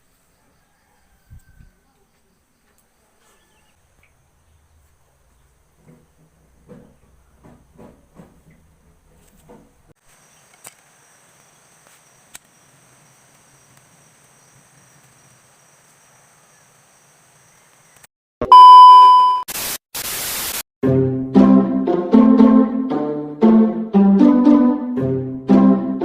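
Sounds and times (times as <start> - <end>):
loud electronic beep: 18.4 - 19.5
bursts of static hiss: 19.5 - 20.6.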